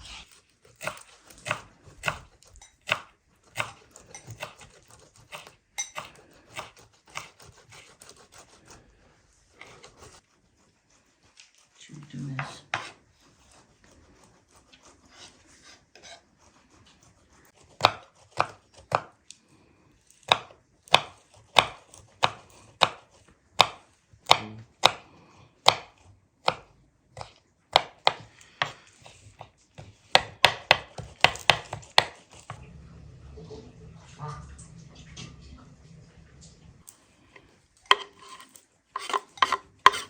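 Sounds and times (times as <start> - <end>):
knife chopping on cutting board: 0.0 - 8.8, 12.4 - 13.6, 17.6 - 19.2, 20.2 - 32.6, 37.8 - 40.0.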